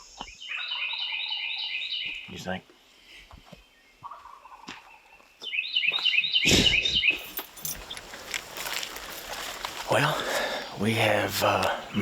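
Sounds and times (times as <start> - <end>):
wild turkey gobbling: 4.0 - 4.8.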